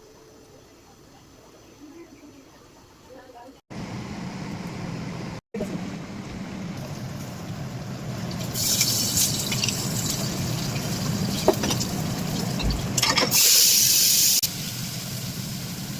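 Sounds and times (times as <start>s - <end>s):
food deep-frying in hot oil: 6.8s - 15.9s.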